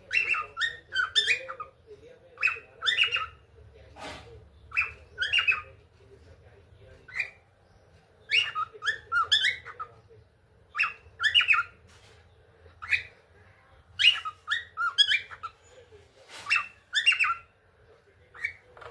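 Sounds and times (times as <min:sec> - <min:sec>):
cockatiel chirping and whistling: 0:00.0 - 0:01.7, 0:02.4 - 0:03.4, 0:04.7 - 0:05.7, 0:08.3 - 0:09.9, 0:10.7 - 0:11.8, 0:14.0 - 0:15.5, 0:16.4 - 0:17.5.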